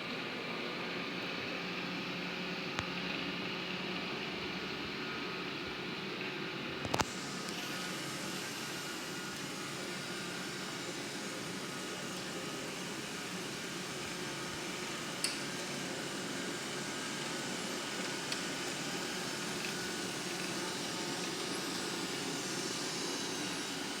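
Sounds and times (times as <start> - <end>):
robot vacuum running: 6.9 - 24.0.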